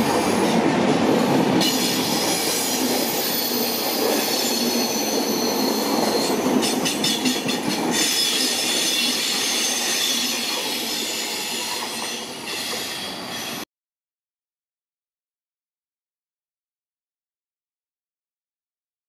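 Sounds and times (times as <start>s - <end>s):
train wheel rumble on rails: 0.0s - 13.6s
high-pitched wheel squeal: 1.6s - 6.8s, 7.9s - 13.6s.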